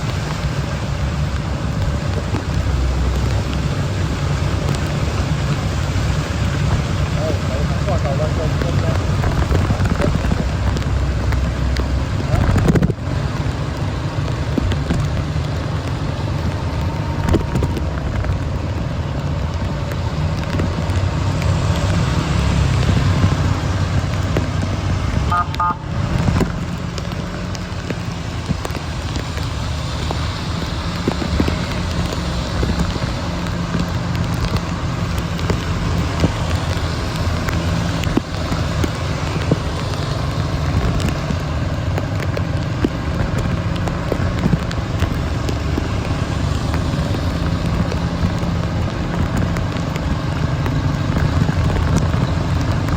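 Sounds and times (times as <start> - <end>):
heavy rain patter: 0.0 - 52.9
road vehicles rumbling: 0.0 - 52.9.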